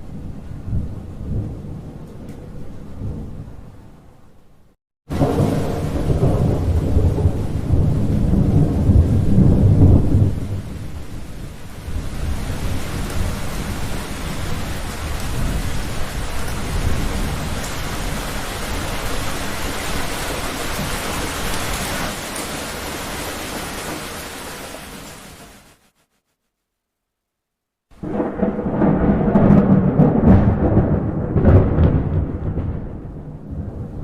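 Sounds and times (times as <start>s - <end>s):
thunder rolling: 5.1s - 24.2s, 28.0s - 34.0s
heavy rain: 5.1s - 26.0s, 28.0s - 34.0s.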